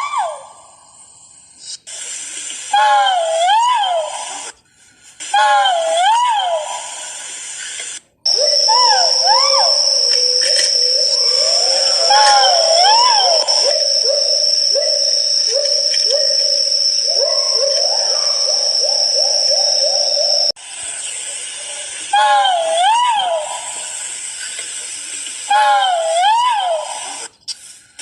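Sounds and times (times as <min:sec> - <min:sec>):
bird hooting: 0:08.3 - 0:20.6
steady high-pitched tone: 0:08.3 - 0:20.6
arching whistled bird calls: 0:08.3 - 0:21.6.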